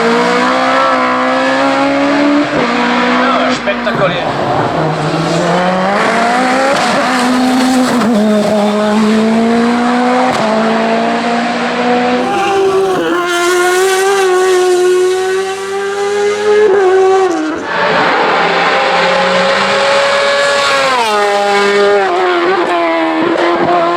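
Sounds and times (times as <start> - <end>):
race car engine at full throttle: 0.0 - 23.9.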